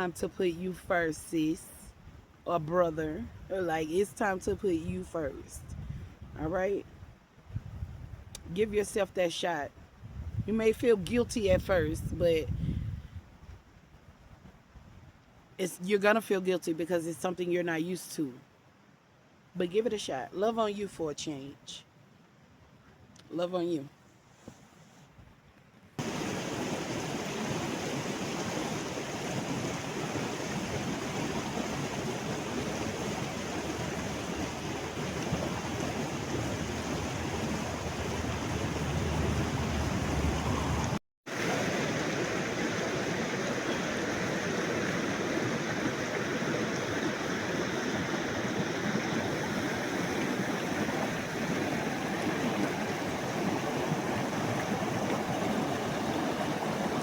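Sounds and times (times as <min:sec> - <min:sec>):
river rushing: 0:26.0 - 0:57.0.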